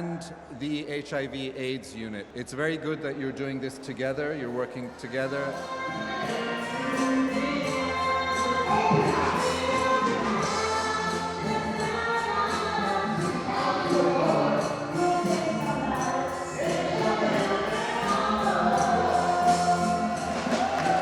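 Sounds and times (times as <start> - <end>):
choir singing: 5.1 - 21.0
light percussion beat: 5.3 - 21.0.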